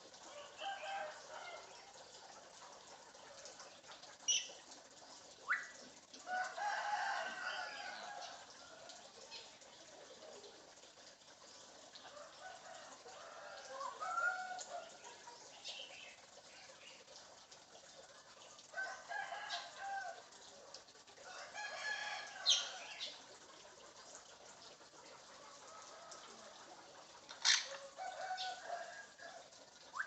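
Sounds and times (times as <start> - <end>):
parrot imitating rooster crowing: 13.6 - 15.0, 21.4 - 23.0, 27.4 - 29.4.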